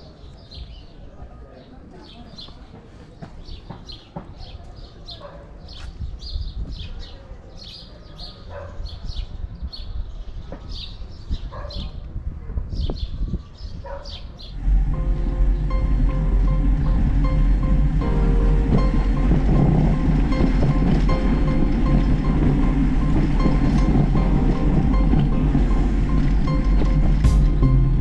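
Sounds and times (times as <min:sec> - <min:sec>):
wind rumble on microphone: 0:06.0 - 0:07.1, 0:08.8 - 0:28.0
background music: 0:14.6 - 0:28.0.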